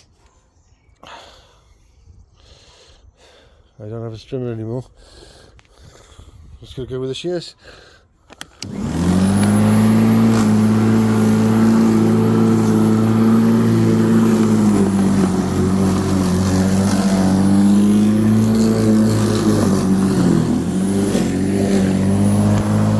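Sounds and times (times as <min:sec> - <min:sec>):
lawnmower motor running: 0:08.6 - 0:22.9.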